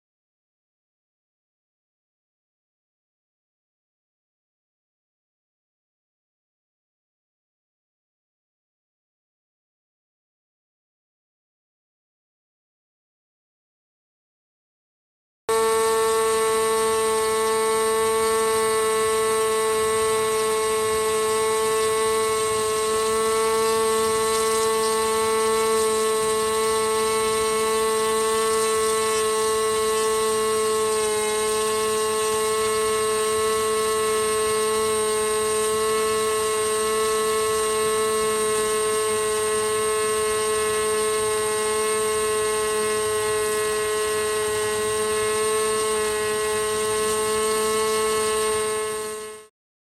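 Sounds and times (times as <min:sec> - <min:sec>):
model engine high-pitched whine: 0:15.5 - 0:49.5.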